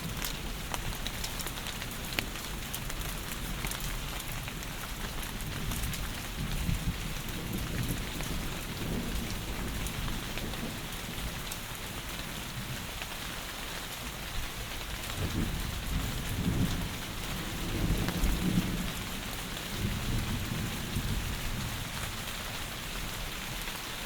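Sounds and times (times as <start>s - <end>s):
heavy rain: 0.0s - 24.0s
rumble of thunder: 2.1s - 11.8s, 15.0s - 23.4s.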